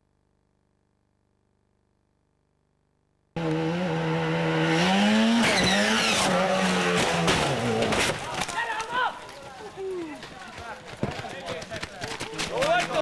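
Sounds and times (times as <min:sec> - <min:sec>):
rally car engine revving: 0:03.4 - 0:08.2
engine sharp cracks: 0:05.4 - 0:08.9.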